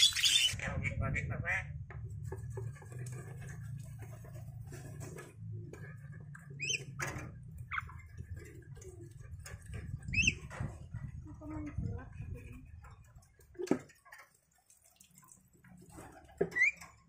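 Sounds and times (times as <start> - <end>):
bird chirping: 0.0 - 0.6, 6.5 - 7.0, 10.0 - 10.5
small taps and scratches: 1.9 - 14.7.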